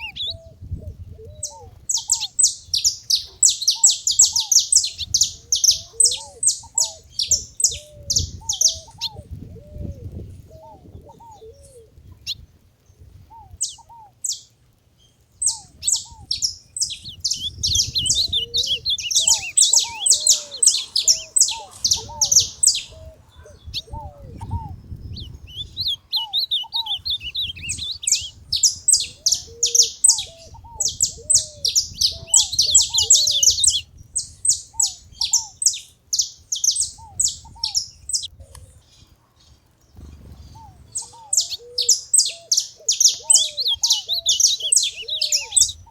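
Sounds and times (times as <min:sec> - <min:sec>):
finch sharp high chirps: 0:00.0 - 0:00.4, 0:15.5 - 0:22.9, 0:23.6 - 0:33.9, 0:40.0 - 0:45.9
lower curved bird notes: 0:00.0 - 0:14.5, 0:15.1 - 0:39.1, 0:39.9 - 0:45.9.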